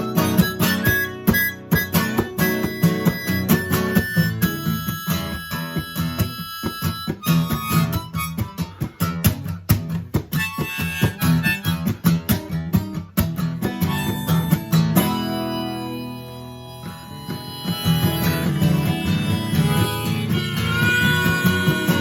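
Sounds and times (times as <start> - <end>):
harmonica long notes: 0.0 - 9.5, 10.3 - 12.6, 13.6 - 22.0
acoustic guitar strumming: 0.0 - 22.0.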